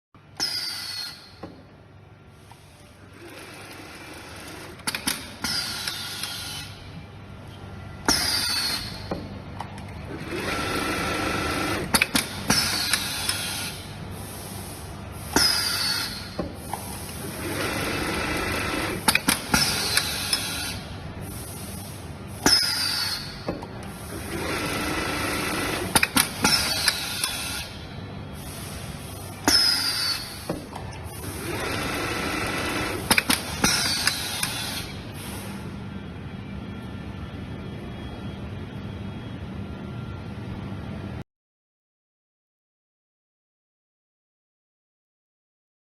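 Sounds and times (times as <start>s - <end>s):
sewing machine stitching: 10.1s - 12.1s, 24.1s - 27.3s, 31.2s - 34.7s.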